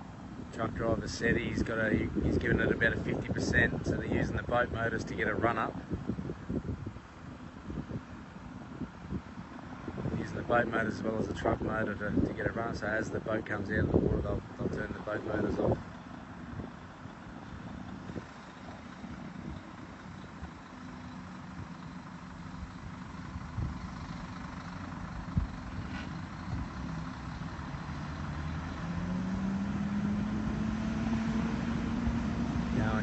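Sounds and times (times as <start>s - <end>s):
boat motors running: 0.0s - 33.0s
truck engine under load: 0.0s - 33.0s.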